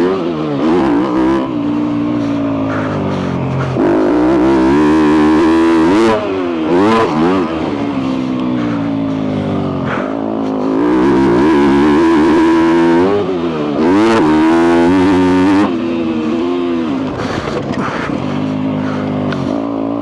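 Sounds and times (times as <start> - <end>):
dirtbike engine revving: 0.0 - 20.0.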